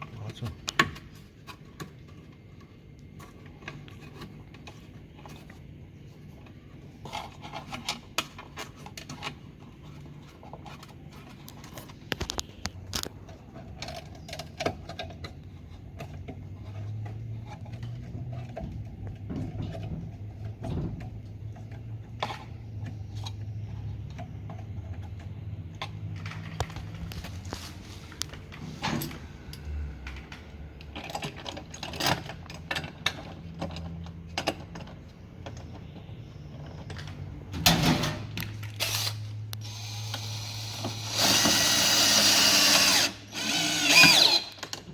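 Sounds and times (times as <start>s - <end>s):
tools clicking and scraping: 6.4s - 37.3s.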